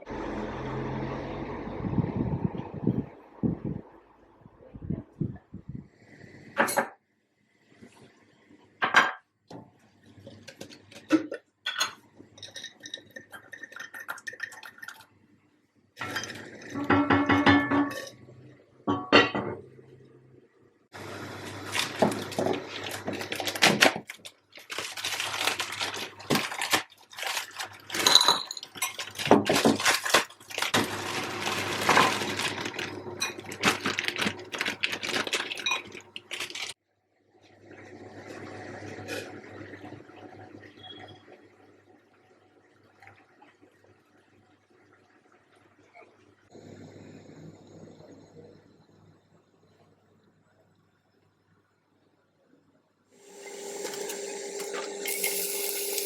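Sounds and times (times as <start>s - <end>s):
dishes and cutlery clattering: 10.3s - 14.9s, 16.0s - 18.2s, 27.9s - 30.3s.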